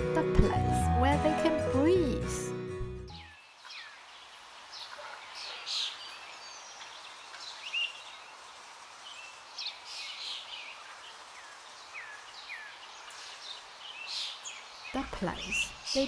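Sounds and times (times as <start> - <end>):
small birds chirping: 3.1 - 16.0
steady outdoor hiss: 3.3 - 16.0.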